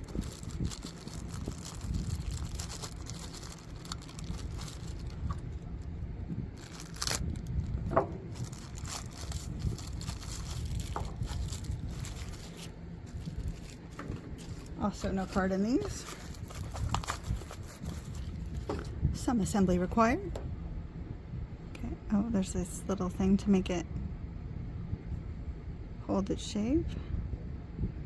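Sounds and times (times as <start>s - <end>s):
plastic packaging crinkling: 0.0s - 18.9s
wind rumbling on microphone: 0.0s - 26.1s, 26.8s - 28.0s.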